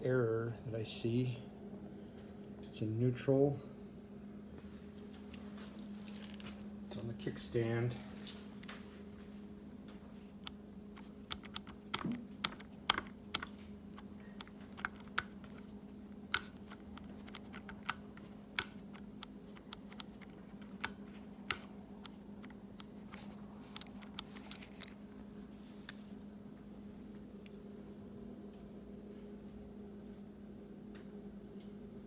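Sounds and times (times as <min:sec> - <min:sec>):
faint steady hum: 0:00.0 - 0:32.0
motorcycle switch clicks: 0:16.3 - 0:22.9.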